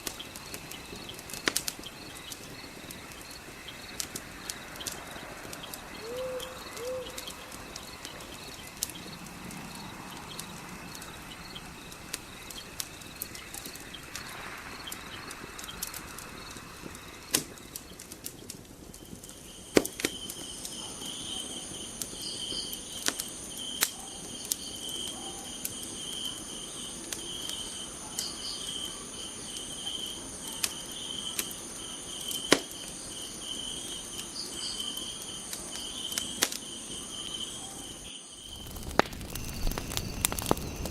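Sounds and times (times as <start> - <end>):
crickets chirping: 0.0 - 40.9
fire crackling and popping: 0.0 - 40.9.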